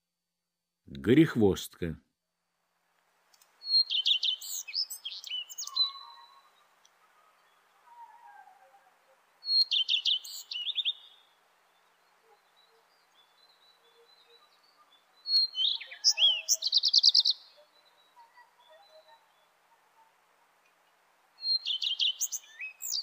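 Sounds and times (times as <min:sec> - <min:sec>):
redstart singing: 0:03.6 - 0:07.8, 0:09.4 - 0:20.0, 0:21.4 - 0:23.0.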